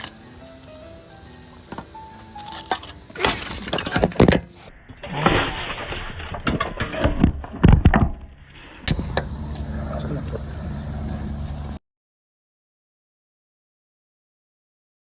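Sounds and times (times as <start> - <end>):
wood chips clinking and crunching: 0.0 - 8.0.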